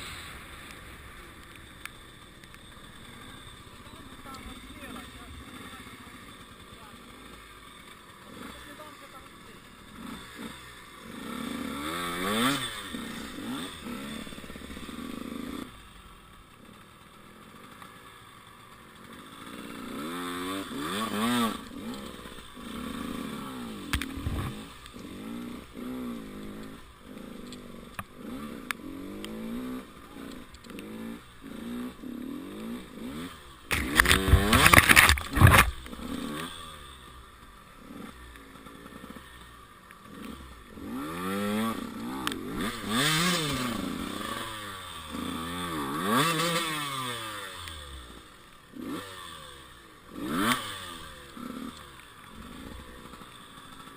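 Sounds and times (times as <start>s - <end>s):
motorcycle engine revving: 0.0s - 53.9s
loud harsh scraping rush: 33.7s - 36.4s.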